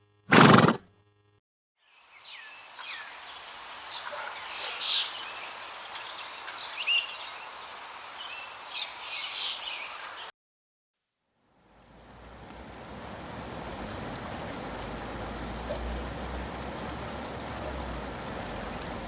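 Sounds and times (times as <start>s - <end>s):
steady background hiss: 2.0s - 10.3s
birds chirping: 2.2s - 7.6s.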